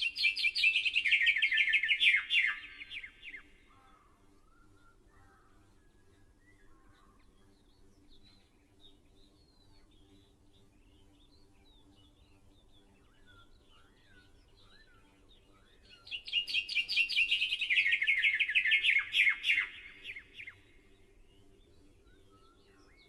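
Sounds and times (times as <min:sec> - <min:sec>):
bird chirps: 0:00.0 - 0:03.8, 0:11.0 - 0:20.7.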